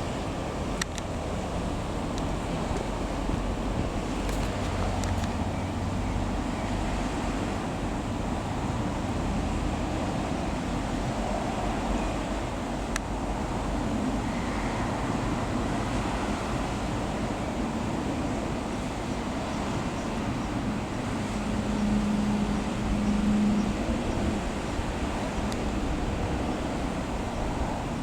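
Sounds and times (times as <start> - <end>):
wind on microphone: 0.0 - 28.0.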